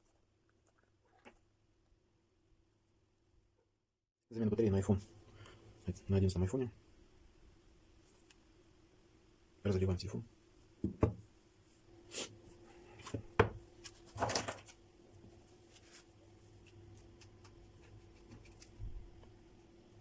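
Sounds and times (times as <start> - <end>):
faint steady hum: 4.3 - 20.0
tools and phone rustling: 12.6 - 19.0.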